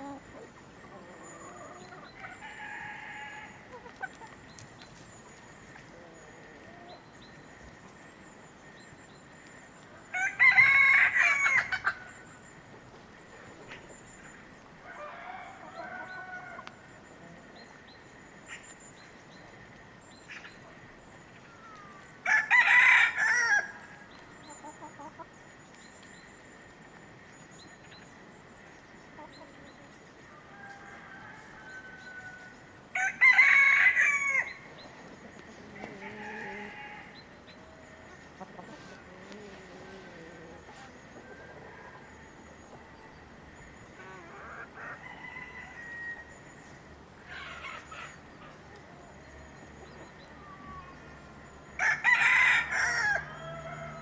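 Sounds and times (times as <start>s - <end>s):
hens clucking: 0.0s - 5.1s, 24.2s - 25.4s, 34.2s - 42.1s
rooster crowing: 2.2s - 3.6s, 10.1s - 12.2s, 14.8s - 16.8s, 22.2s - 24.0s, 30.4s - 34.7s, 44.1s - 46.4s, 51.8s - 54.0s.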